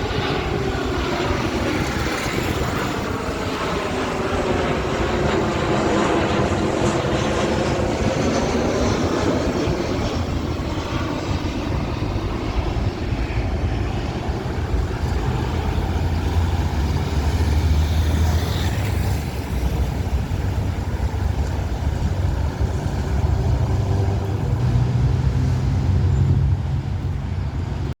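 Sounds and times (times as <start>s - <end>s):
jet engines passing: 0.0s - 28.0s.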